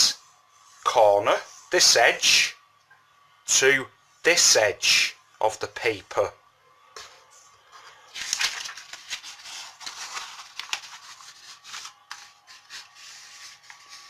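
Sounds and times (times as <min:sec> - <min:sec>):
paper rustling and folding: 0:07.7 - 0:14.0.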